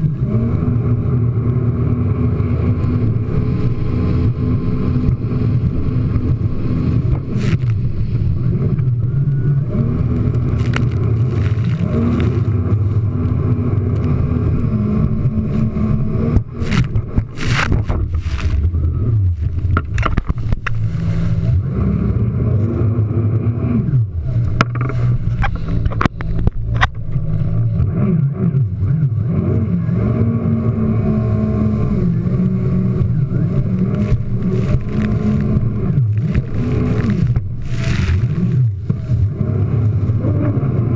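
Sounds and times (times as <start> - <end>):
water splashes and hull slaps: 0.0 - 21.8, 31.1 - 40.9
jet ski engine revving: 0.0 - 40.9.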